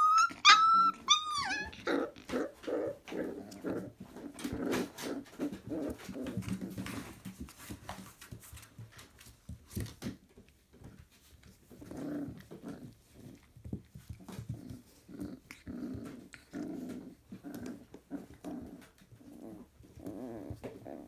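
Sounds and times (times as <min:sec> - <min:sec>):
puppies growling: 0:00.0 - 0:07.5, 0:11.7 - 0:21.0.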